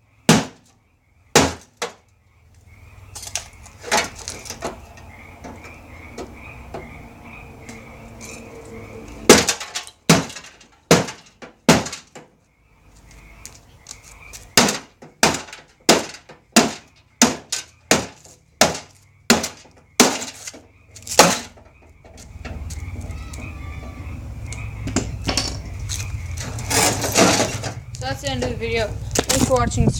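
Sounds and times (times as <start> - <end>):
hammer smashing microwave: 0.3 - 0.6, 1.3 - 2.0, 9.3 - 12.3, 14.6 - 21.6
glass breaking: 9.3 - 12.2, 14.6 - 21.6, 26.6 - 27.8.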